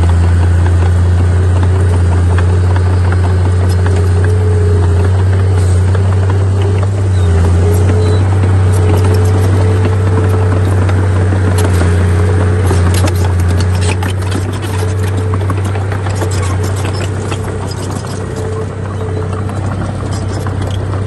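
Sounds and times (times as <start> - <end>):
heavy machine diesel engine running: 0.0 - 21.0
rattles and scraping clanks: 0.0 - 21.0.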